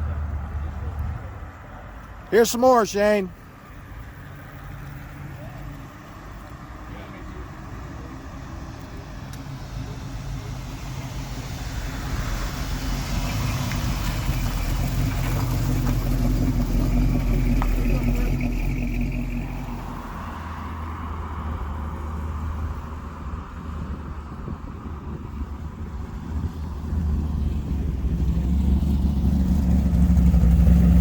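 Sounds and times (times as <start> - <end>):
car engine driving past: 9.5 - 21.8, 26.6 - 31.0.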